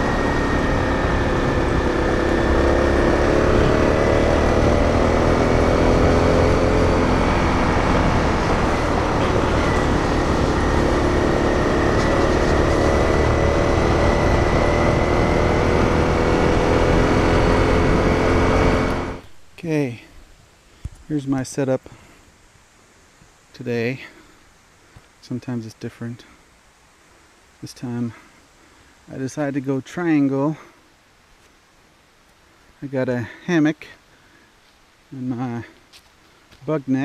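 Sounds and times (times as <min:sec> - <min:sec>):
motorcycle engine cruising: 0:00.0 - 0:19.3
wind and road noise: 0:00.0 - 0:33.8, 0:34.4 - 0:37.0.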